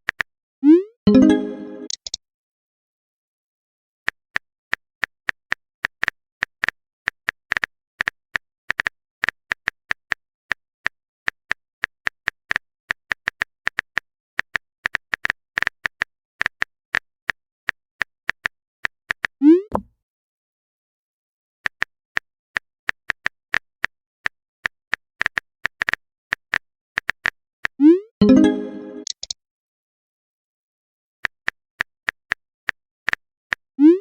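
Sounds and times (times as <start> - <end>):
rising bloop sound effect: 0.7 - 2.0, 27.8 - 29.1.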